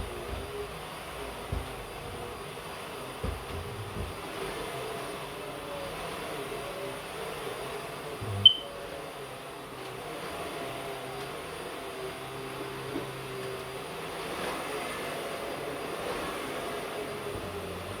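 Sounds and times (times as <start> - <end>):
vacuum cleaner running: 0.0 - 18.0
soft knocks: 3.2 - 4.4.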